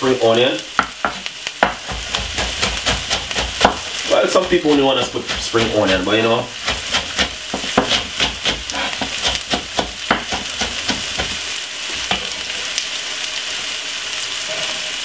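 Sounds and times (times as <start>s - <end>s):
onion sizzling and crackling in oil: 0.0s - 15.0s.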